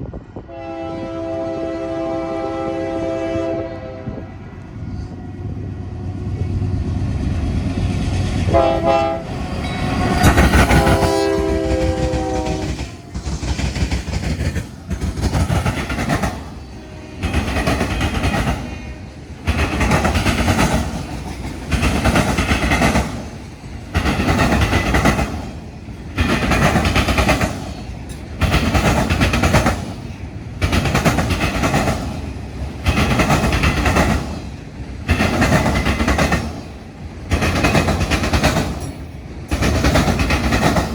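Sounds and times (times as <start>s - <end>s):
freight locomotives rumbling: 0.0s - 40.9s
train wheel and rail noise: 0.0s - 40.9s
train horn blasts: 0.4s - 4.4s, 8.4s - 13.0s, 16.5s - 19.5s.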